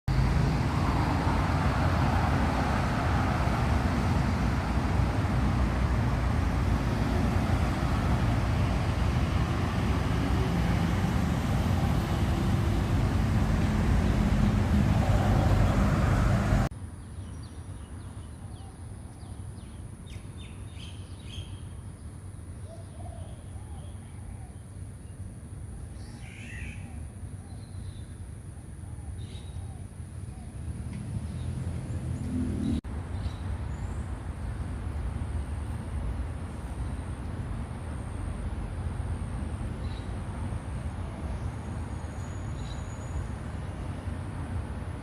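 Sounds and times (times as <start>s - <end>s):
loud steady rushing noise: 0.1s - 16.7s.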